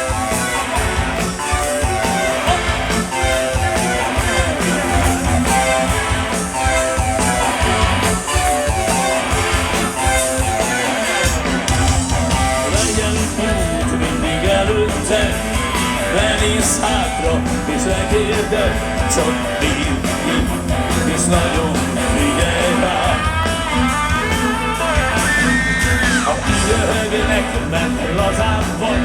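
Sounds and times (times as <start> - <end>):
guitar over steady beat: 0.0 - 29.0
live rock band playing: 0.0 - 29.0.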